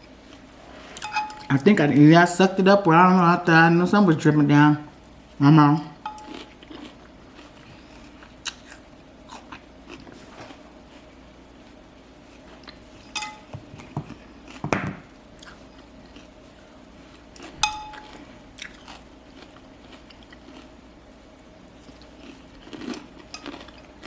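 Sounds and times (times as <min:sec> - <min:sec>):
utensil clinking against dish: 0:01.0 - 0:01.5, 0:06.0 - 0:06.4, 0:13.1 - 0:13.7, 0:17.6 - 0:18.2
person chewing: 0:06.1 - 0:10.6, 0:13.8 - 0:14.6, 0:15.4 - 0:16.4, 0:17.1 - 0:20.8, 0:21.8 - 0:24.0.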